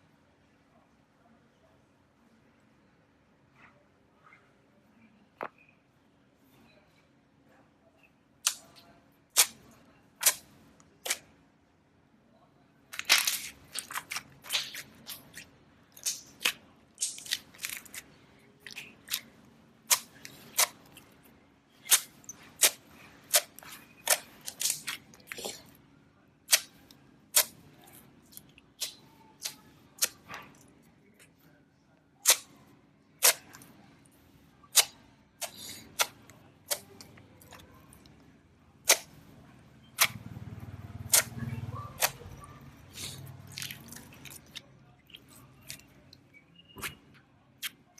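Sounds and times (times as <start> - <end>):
soft low squishing: 12.9 - 47.9
slime clicking and popping: 19.9 - 21.0, 26.5 - 27.6, 32.2 - 32.5, 38.8 - 39.2, 40.0 - 40.2, 41.1 - 41.4.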